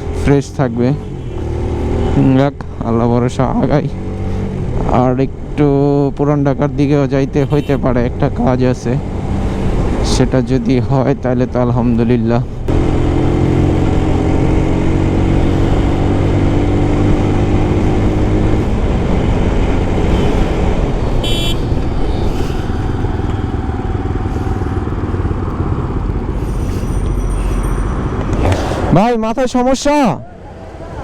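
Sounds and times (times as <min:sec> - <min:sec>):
road and traffic noise: 0:00.0 - 0:31.0
motorcycle engine running: 0:12.6 - 0:28.6
horn toot: 0:21.2 - 0:21.8.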